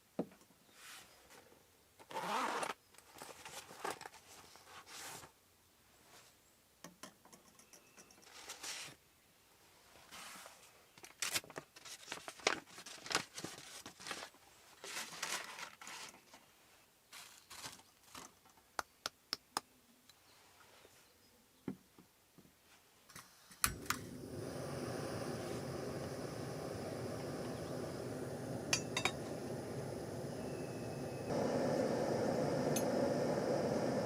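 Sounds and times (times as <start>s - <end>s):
packaging crinkling and rustling: 11.0s - 16.5s, 17.1s - 18.5s
steady hiss: 23.1s - 34.0s.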